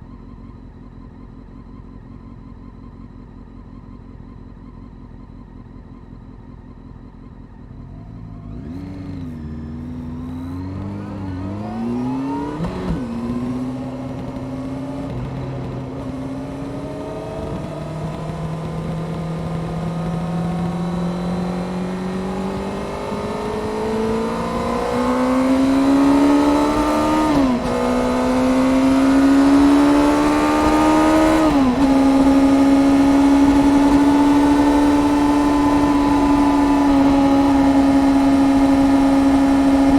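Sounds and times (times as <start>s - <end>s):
motorcycle engine accelerating: 0.0s - 39.9s
wind noise: 21.8s - 39.9s.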